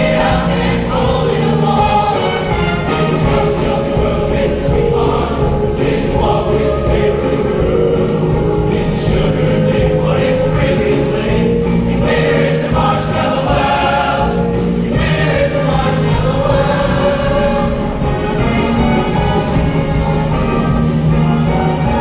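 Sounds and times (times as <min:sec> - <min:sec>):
choir singing sustained chords: 0:00.0 - 0:22.0
instrumental accompaniment: 0:00.0 - 0:22.0.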